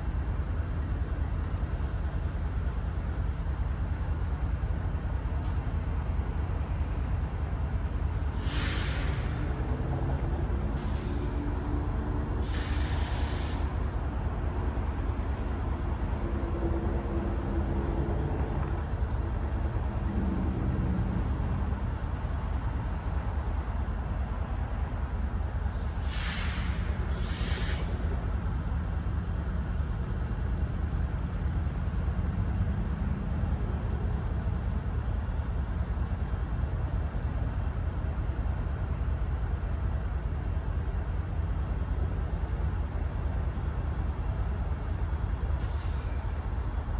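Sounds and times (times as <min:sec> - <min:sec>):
diesel engine idling: 0:00.0 - 0:46.9
air release hisses: 0:12.4 - 0:13.7, 0:26.0 - 0:27.9.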